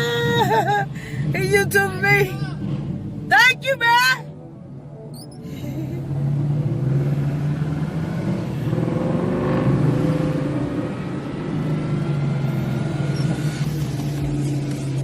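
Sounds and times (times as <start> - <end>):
car engine droning: 0.0 - 15.0
vehicle passing close: 5.3 - 15.0.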